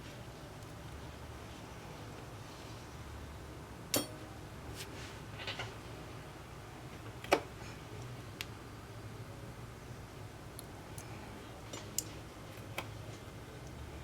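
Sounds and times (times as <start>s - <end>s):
low steady hum: 0.0s - 14.0s
tools clicking and tapping: 3.9s - 4.2s.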